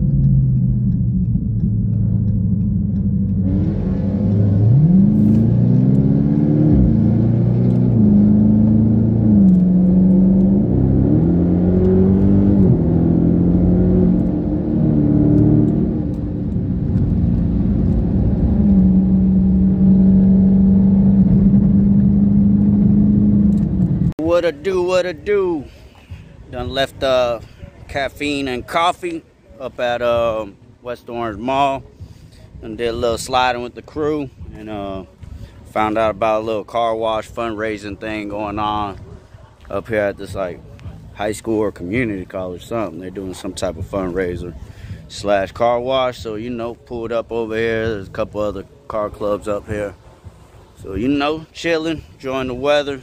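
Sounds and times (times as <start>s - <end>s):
car engine revving: 0.0s - 24.1s.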